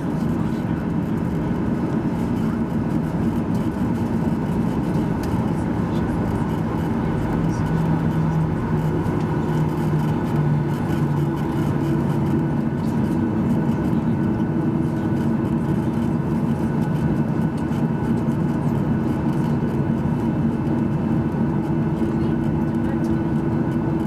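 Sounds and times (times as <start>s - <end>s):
jet engines heard inside cabin: 0.0s - 24.0s.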